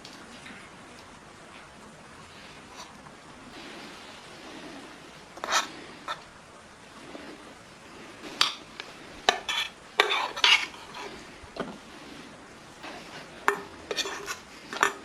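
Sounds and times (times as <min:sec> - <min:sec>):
metal utensil scraping pot: 0:05.4 - 0:06.2, 0:08.2 - 0:11.4, 0:12.1 - 0:15.0.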